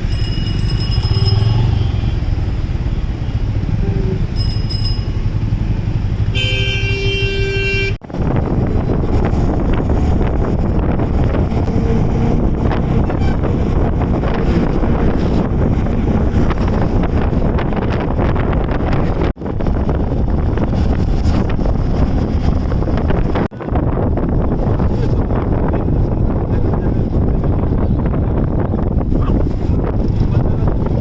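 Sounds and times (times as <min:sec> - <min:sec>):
traffic engine hum: 0:00.0 - 0:31.0
vehicle horns honking: 0:00.9 - 0:05.1, 0:06.2 - 0:08.0
wind rushing over microphone: 0:08.0 - 0:31.0.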